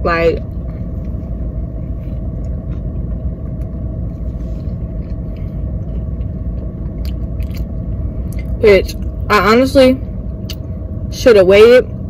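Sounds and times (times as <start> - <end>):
chewing clicks: 5.0 - 7.7.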